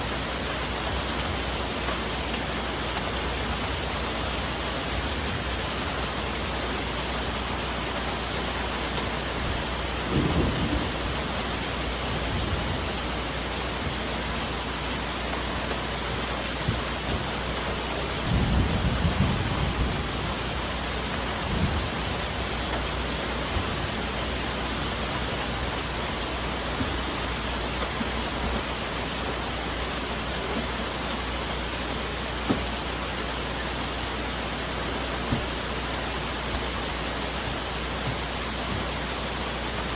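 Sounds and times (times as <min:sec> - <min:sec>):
rain on foliage: 0:00.0 - 0:39.9
thunder rumbling: 0:09.3 - 0:14.0, 0:16.6 - 0:27.2.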